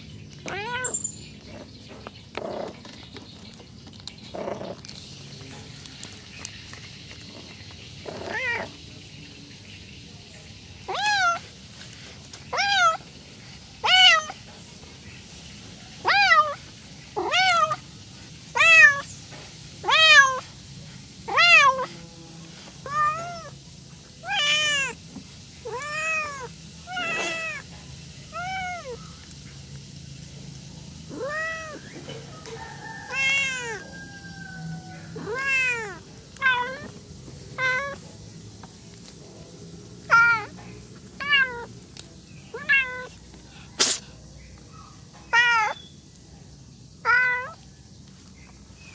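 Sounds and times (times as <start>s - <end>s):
cat meowing: 0.4s - 1.0s, 8.1s - 8.7s, 10.8s - 11.4s, 12.5s - 13.0s, 13.8s - 14.4s, 16.0s - 16.6s, 17.2s - 17.8s, 18.5s - 19.1s, 19.8s - 20.4s, 21.3s - 21.9s, 22.8s - 23.6s, 24.2s - 25.0s, 25.6s - 27.6s, 28.3s - 29.0s, 31.1s - 31.9s, 33.1s - 36.9s, 37.6s - 38.0s, 40.1s - 40.5s, 41.2s - 41.7s, 42.5s - 43.2s, 45.3s - 45.8s, 47.0s - 47.6s.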